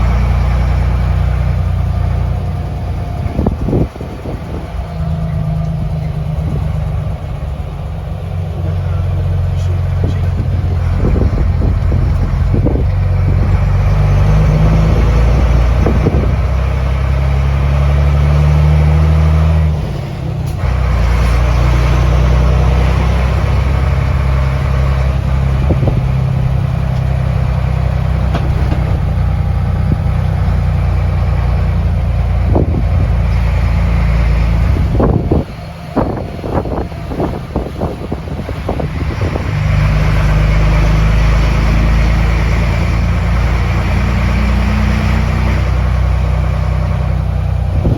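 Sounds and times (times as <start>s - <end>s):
truck diesel engine running: 0.0s - 47.9s
short knocks and rattles: 28.0s - 30.4s.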